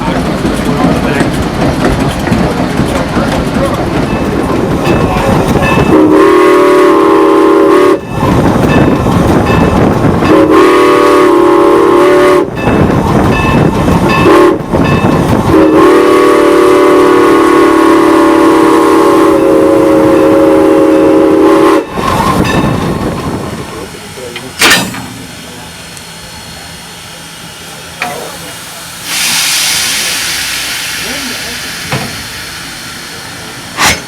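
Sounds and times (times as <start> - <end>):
steam exhaust of passing train: 0.0 - 34.0
steam locomotive whistle blasts: 5.8 - 8.3, 10.3 - 12.6, 14.2 - 14.6, 15.5 - 22.4.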